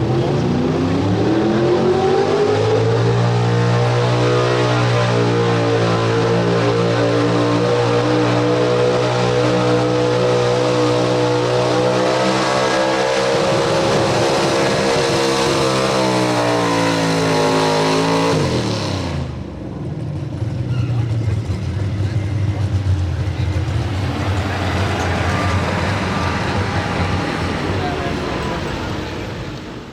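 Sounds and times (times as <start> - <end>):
truck engine revving high: 0.0 - 29.9.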